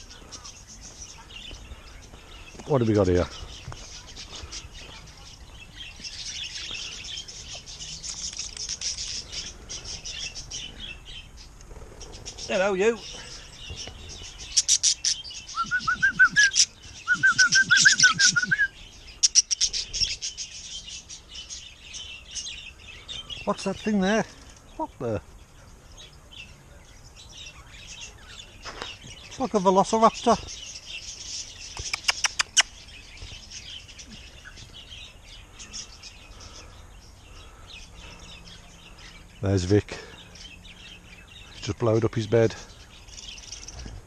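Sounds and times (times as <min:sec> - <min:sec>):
birds chirping: 0:00.0 - 0:44.0
rapid repeated lower bird calls: 0:00.0 - 0:44.0
sharp clicks: 0:31.8 - 0:32.7.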